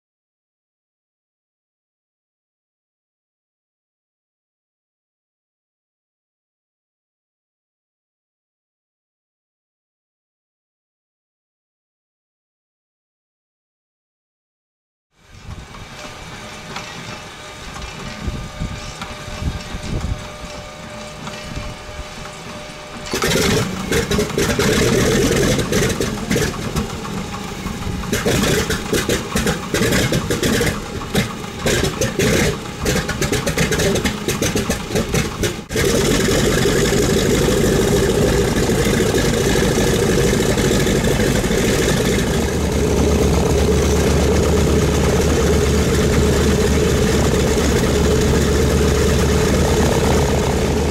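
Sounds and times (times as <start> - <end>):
piston engine running: 15.3 - 50.9
starter cranking: 23.1 - 50.9.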